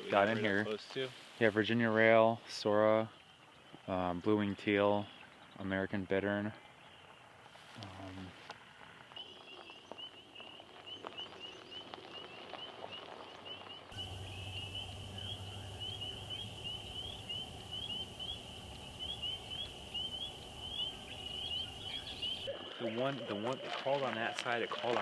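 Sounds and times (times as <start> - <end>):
frogs peeping: 9.1 - 23.1
low hum: 14.0 - 22.5.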